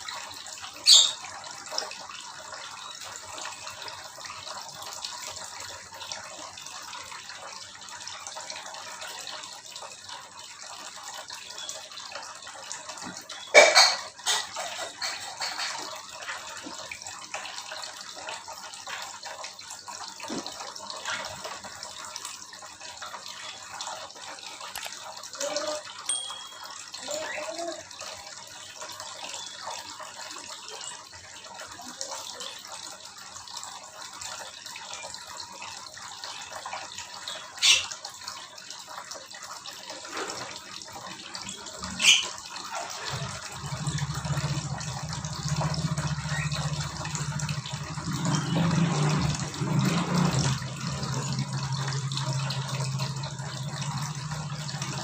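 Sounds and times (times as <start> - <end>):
running water splashing: 0.0 - 55.0
bird chirps and calls: 0.9 - 1.2, 41.9 - 42.4.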